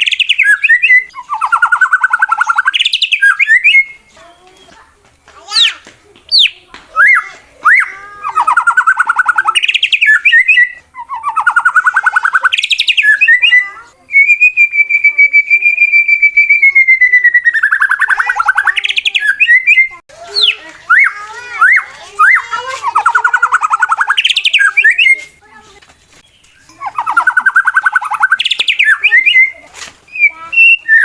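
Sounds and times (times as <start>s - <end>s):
bird singing with trills: 0.0s - 4.8s, 5.5s - 25.4s, 26.2s - 31.0s.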